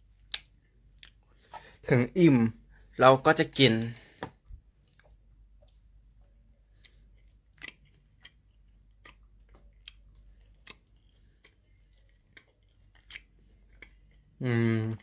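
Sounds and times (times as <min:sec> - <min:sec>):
mouth clicks and smacks: 0:00.3 - 0:01.2, 0:06.8 - 0:14.0
person chewing food: 0:04.8 - 0:05.8, 0:06.6 - 0:14.4.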